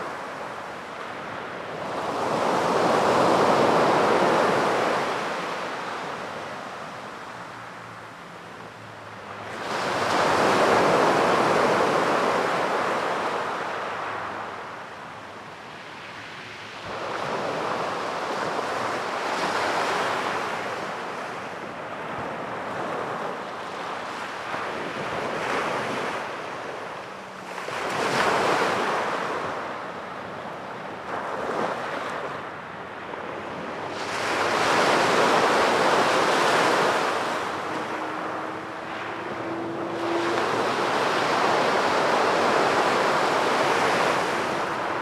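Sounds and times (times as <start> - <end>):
ocean waves breaking on beach: 0.0 - 45.0.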